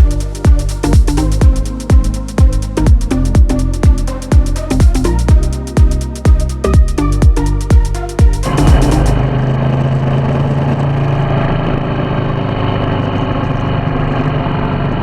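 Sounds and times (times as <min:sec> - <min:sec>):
electronic dance track thumps: 0:00.0 - 0:09.5
motorcycle engine running steadily: 0:00.0 - 0:11.1.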